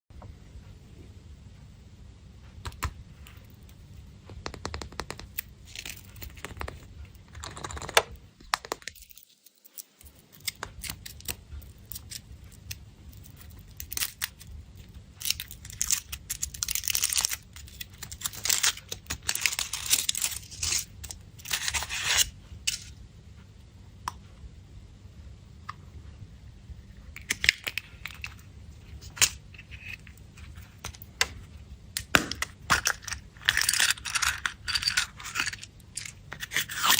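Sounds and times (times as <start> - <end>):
candy wrapper tearing and crinkling: 5.4 - 22.9, 27.2 - 30.7, 32.0 - 36.9.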